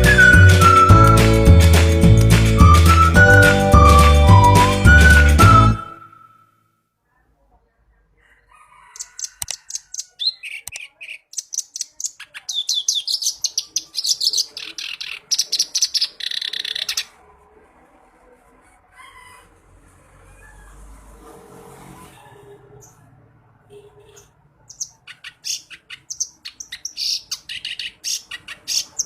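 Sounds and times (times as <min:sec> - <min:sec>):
reed warbler singing: 0:09.0 - 0:17.1, 0:24.7 - 0:29.0.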